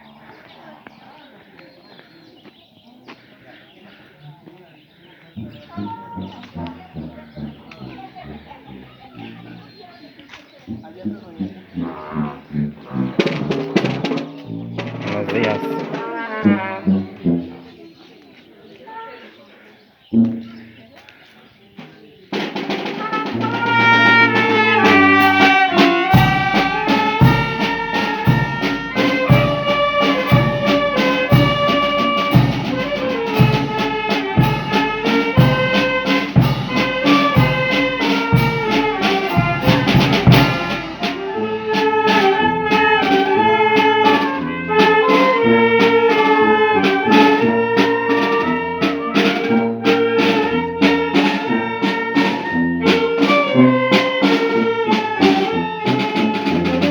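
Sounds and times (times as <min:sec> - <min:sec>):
steady drum beat: 0:05.4 - 0:09.8, 0:10.7 - 0:17.7, 0:21.8 - 0:56.9
saxophone and trumpet melody: 0:10.8 - 0:17.9, 0:22.3 - 0:56.9.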